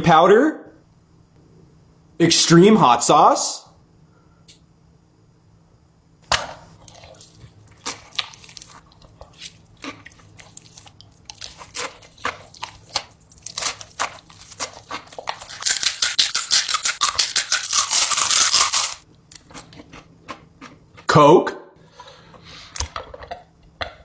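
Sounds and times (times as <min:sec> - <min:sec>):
person chewing crunchy food: 0:06.4 - 0:21.1.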